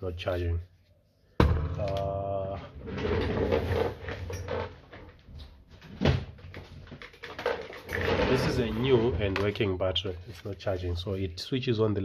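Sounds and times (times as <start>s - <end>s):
clattering and scraping: 2.6s - 9.7s.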